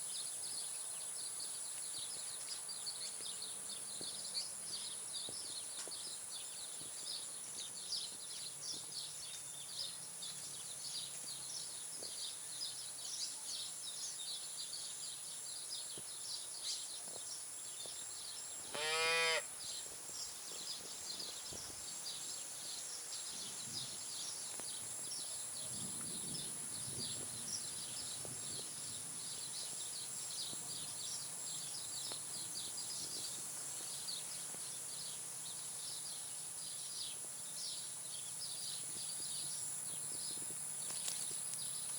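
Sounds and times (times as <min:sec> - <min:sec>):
insect drone and chirping: 0:00.0 - 0:41.9
cow mooing: 0:18.7 - 0:19.4.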